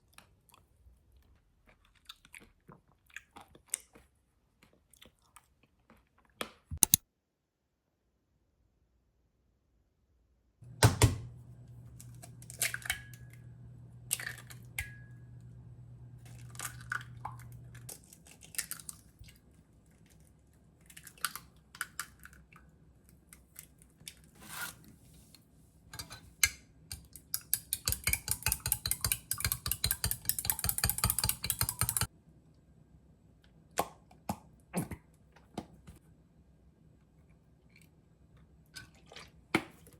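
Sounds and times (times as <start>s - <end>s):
low steady hum: 10.6s - 18.1s
utensils and dishes clinking: 27.4s - 32.1s
fast even tapping: 27.7s - 32.1s.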